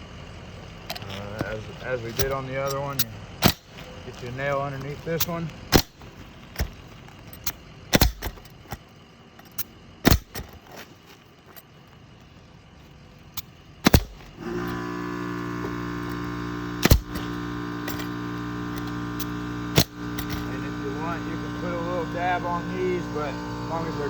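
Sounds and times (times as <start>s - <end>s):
steady mechanical hum: 0.0s - 24.0s
hammer striking nails: 5.7s - 6.8s, 7.9s - 8.4s, 10.0s - 10.6s, 13.8s - 14.4s, 16.8s - 18.1s.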